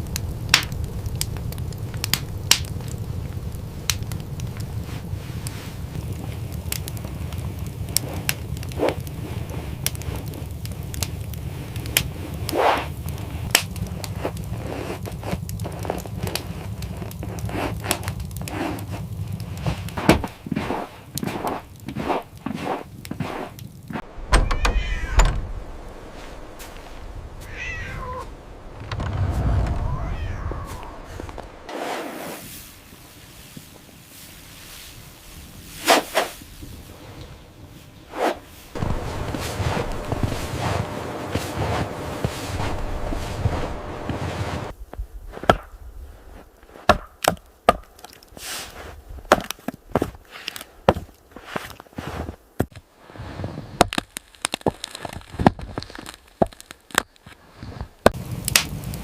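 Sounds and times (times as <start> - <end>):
high falling animal call: 24.4 - 25.3, 27.4 - 28.4, 29.5 - 31.7.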